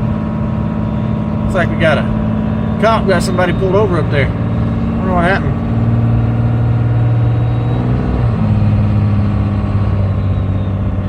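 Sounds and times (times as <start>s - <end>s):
diesel engine running under load: 0.0s - 11.0s
faint high turbo whistle: 0.7s - 1.8s, 7.2s - 8.4s, 9.8s - 11.0s.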